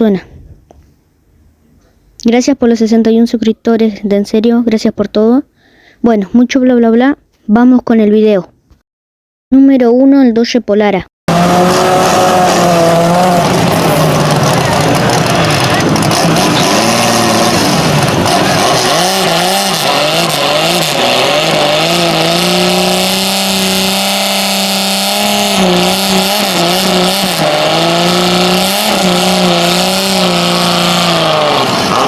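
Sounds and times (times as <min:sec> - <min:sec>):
car engine revving: 0:11.3 - 0:32.0.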